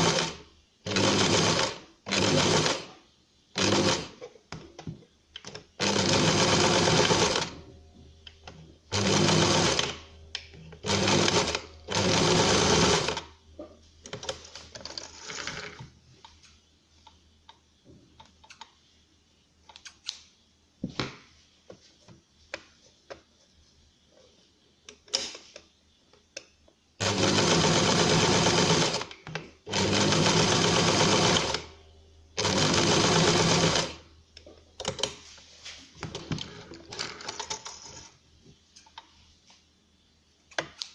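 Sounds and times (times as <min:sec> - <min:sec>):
sewing machine stitching: 0:00.0 - 0:02.9, 0:03.6 - 0:04.2, 0:05.8 - 0:07.6, 0:08.9 - 0:10.0, 0:10.8 - 0:13.3, 0:27.0 - 0:29.1, 0:29.7 - 0:31.7, 0:32.4 - 0:34.0.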